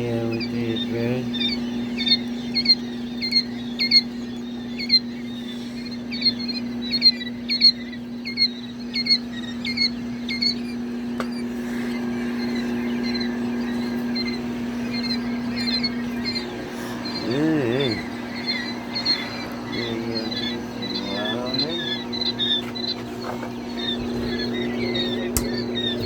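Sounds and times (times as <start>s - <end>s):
chicks peeping: 0.0s - 26.0s
steady low hum: 0.0s - 26.0s
sharp click: 25.4s - 25.6s.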